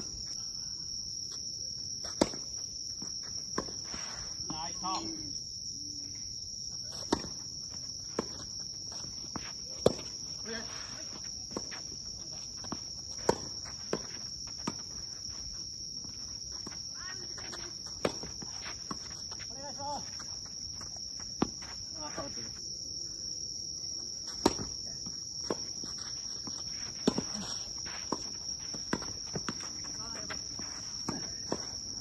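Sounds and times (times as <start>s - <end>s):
tennis balls struck by rackets: 2.1s - 2.5s, 7.0s - 7.5s, 9.3s - 10.2s, 13.0s - 14.9s, 24.3s - 25.8s
high-pitched insect drone: 3.0s - 7.0s
tennis balls bouncing on court: 7.0s - 7.4s, 8.0s - 10.2s, 11.2s - 15.1s, 16.0s - 19.4s, 20.1s - 21.8s, 24.3s - 32.0s.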